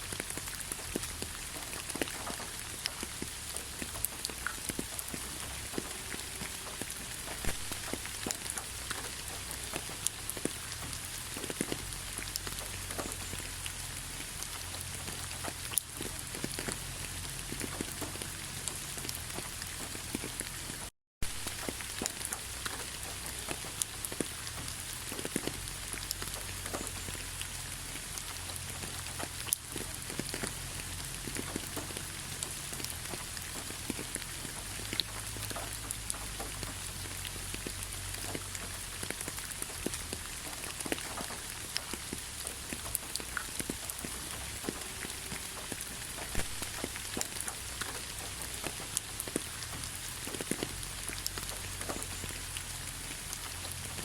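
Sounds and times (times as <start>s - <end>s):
raindrops ticking: 0.0s - 54.0s
steady rain hiss: 0.0s - 54.0s.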